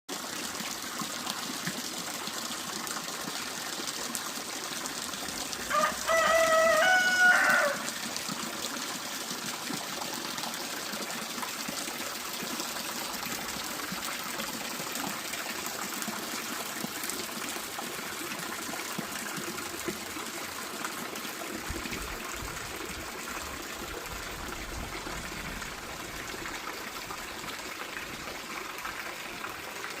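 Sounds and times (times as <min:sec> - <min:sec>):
water flowing: 0:00.1 - 0:30.0
rooster crowing: 0:05.7 - 0:08.0.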